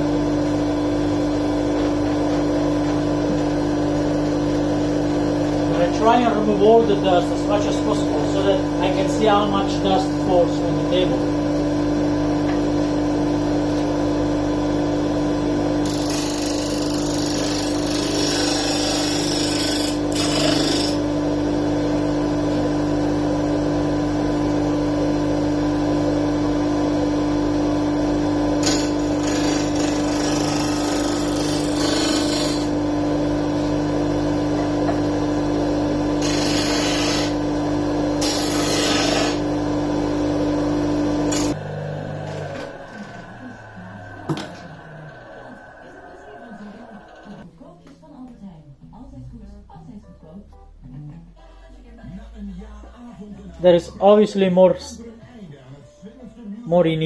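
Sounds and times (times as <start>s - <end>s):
wood being sanded: 15.9s - 21.0s, 38.2s - 39.4s
disc sander motor hum: 28.6s - 47.4s
sander running down: 40.4s - 47.4s.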